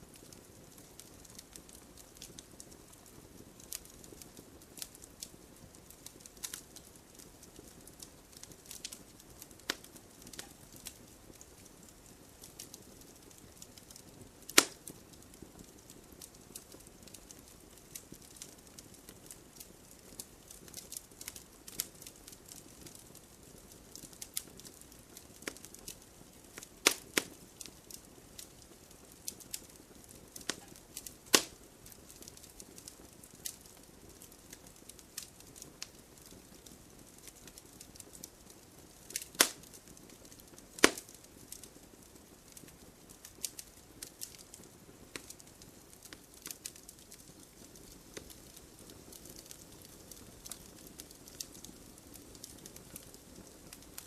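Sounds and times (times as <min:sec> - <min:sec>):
campfire crackling: 0:00.0 - 0:54.0
loud sharp fire pops: 0:14.5 - 0:15.0, 0:26.8 - 0:27.4, 0:30.4 - 0:31.6, 0:39.1 - 0:39.7, 0:40.8 - 0:41.2.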